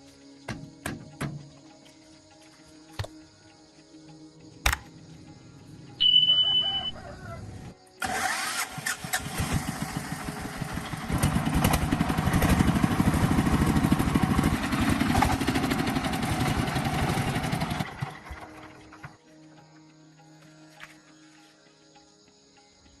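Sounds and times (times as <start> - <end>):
engine running roughly: 8.0 - 19.2.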